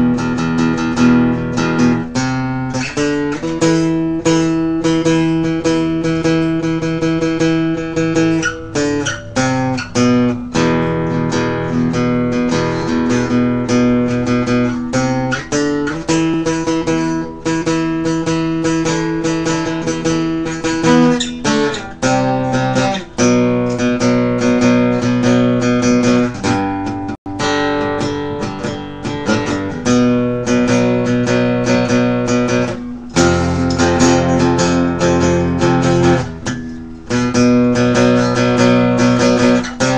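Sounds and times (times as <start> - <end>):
acoustic guitar chords: 0.0 - 39.9.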